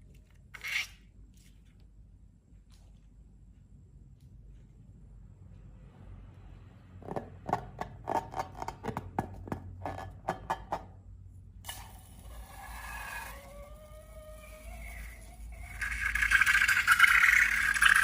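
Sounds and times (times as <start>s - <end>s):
rubbing with sliding squeaks: 0.5s - 1.0s.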